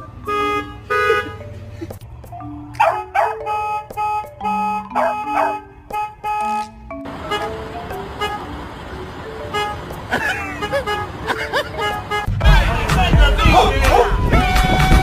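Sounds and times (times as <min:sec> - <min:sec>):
background music: 0:00.0 - 0:15.0
dog barking: 0:02.8 - 0:03.4, 0:05.0 - 0:05.6, 0:13.5 - 0:14.2.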